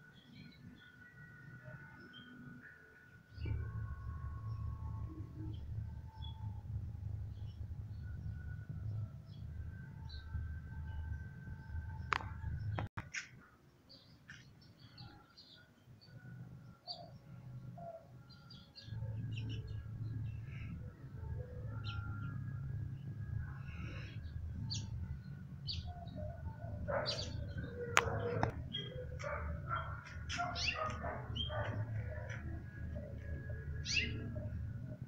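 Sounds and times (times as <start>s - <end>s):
small birds chirping: 23.6s - 35.0s.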